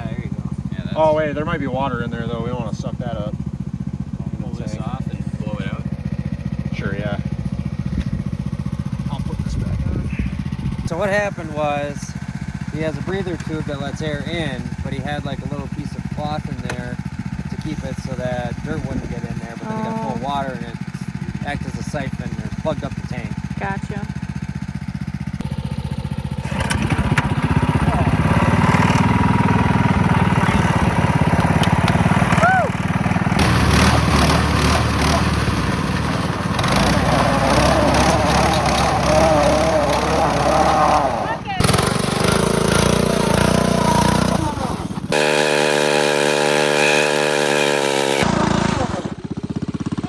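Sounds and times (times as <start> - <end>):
mini bike engine running: 0.0 - 50.0.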